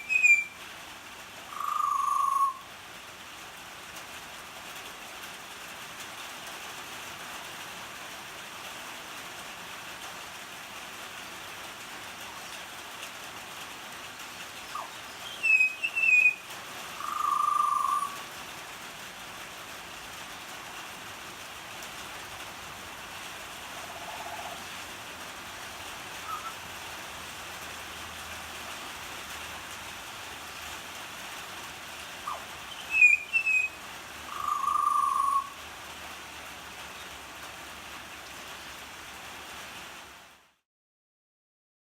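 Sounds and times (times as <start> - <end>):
bird whistling notes: 0.0 - 0.6, 1.5 - 2.6, 14.7 - 16.4, 17.0 - 18.2, 26.2 - 26.6, 32.3 - 35.5
rain falling: 0.0 - 40.6.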